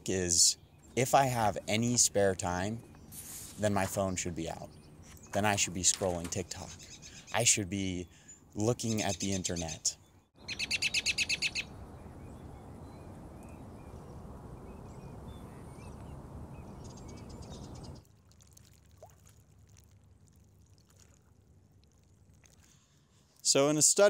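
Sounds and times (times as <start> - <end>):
faint hiss: 3.1 - 3.8
faint bird chirps: 6.7 - 18.0
songbird high trill: 10.4 - 18.0.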